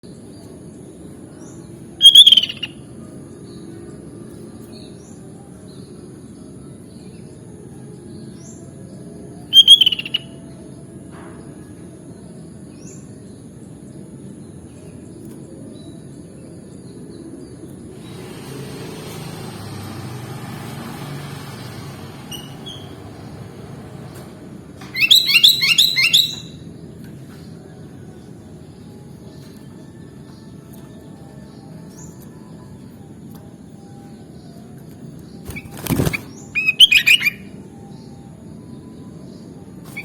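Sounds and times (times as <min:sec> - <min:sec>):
bulbul calling: 0:02.0 - 0:02.8, 0:09.5 - 0:10.4, 0:25.0 - 0:26.6, 0:35.5 - 0:37.5
faint bird chirps: 0:02.0 - 0:03.8, 0:09.0 - 0:10.7, 0:24.9 - 0:26.7, 0:30.4 - 0:40.0
hiss: 0:18.0 - 0:20.1.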